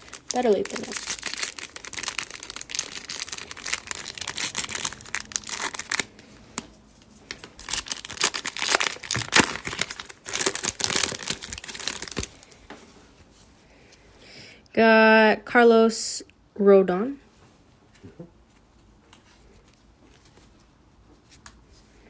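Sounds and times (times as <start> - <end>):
wrapper tearing and crinkling: 0.0 - 6.2, 7.3 - 12.6.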